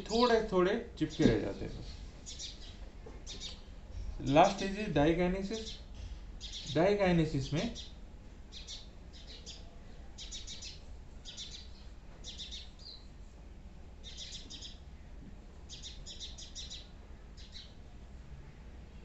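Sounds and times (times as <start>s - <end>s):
small birds chirping: 0.0s - 13.3s, 14.0s - 17.9s
low steady hum: 0.0s - 19.0s.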